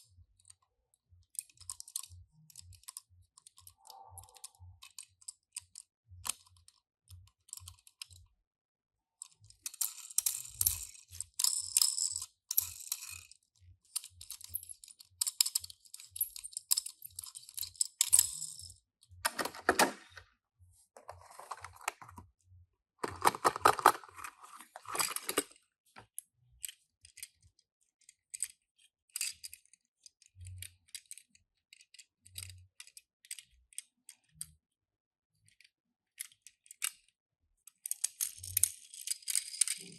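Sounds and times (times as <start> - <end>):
packaging rustling: 19.3 - 20.2, 21.0 - 22.2, 23.0 - 25.5
scrapes: 21.0 - 22.2.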